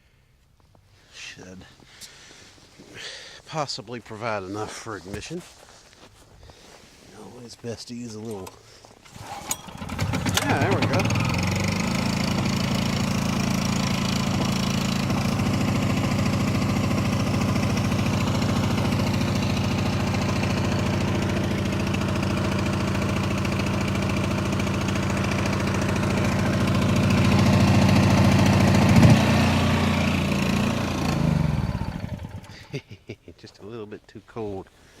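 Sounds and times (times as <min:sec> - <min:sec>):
generator engine running: 0:09.0 - 0:32.6.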